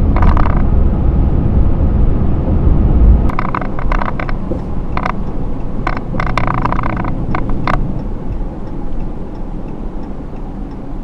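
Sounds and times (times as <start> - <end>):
sharp clicks and rattles: 0.0 - 0.7, 3.3 - 10.2
pickup engine and road rumble: 0.0 - 11.0.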